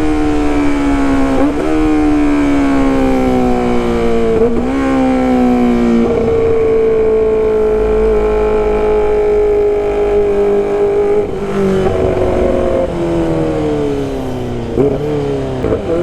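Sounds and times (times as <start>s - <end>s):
motorcycle engine and exhaust: 0.0s - 16.0s
wind rumble: 11.2s - 15.6s.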